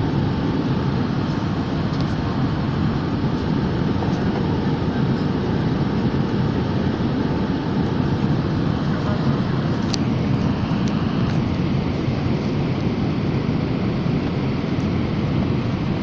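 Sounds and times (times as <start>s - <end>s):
airplane cabin drone: 0.0s - 16.0s.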